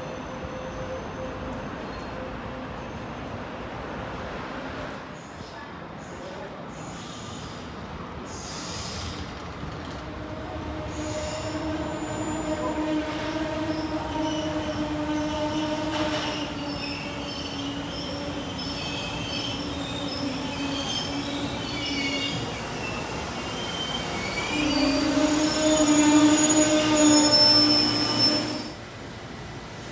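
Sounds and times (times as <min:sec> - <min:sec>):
high wavering wheel squeal: 0:10.9 - 0:28.8.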